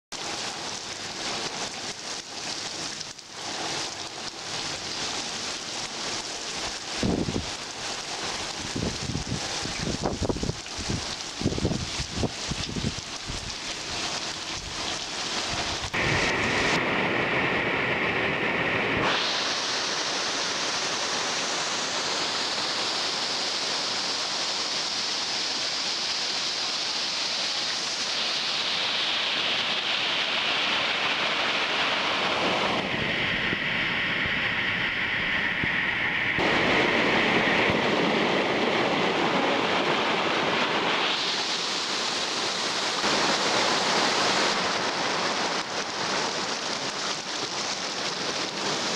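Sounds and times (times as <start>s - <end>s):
steady hissing rain: 0.1s - 48.9s.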